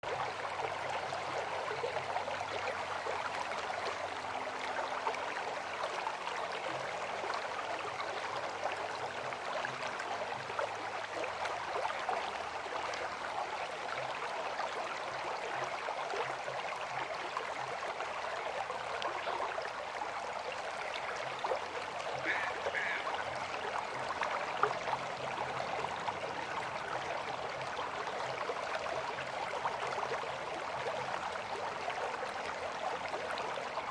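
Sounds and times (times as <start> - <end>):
river water rushing and gurgling: 0.0 - 33.9.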